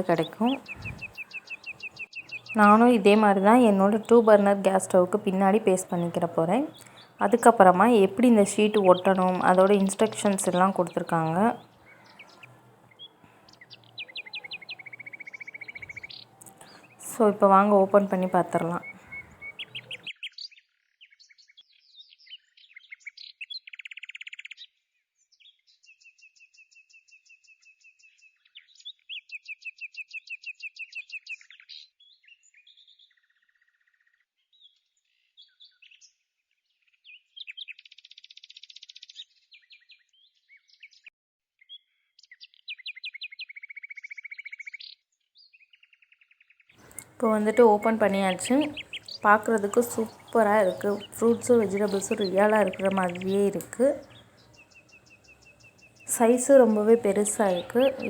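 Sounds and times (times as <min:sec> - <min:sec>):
bird trills: 0:00.0 - 0:20.1, 0:46.8 - 0:58.0
small birds chirping: 0:00.0 - 0:20.5, 0:46.8 - 0:58.0.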